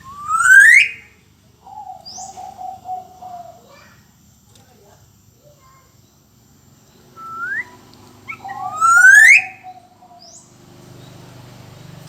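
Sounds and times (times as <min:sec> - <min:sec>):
bird fluty whistles: 0:00.0 - 0:01.1, 0:07.2 - 0:09.8.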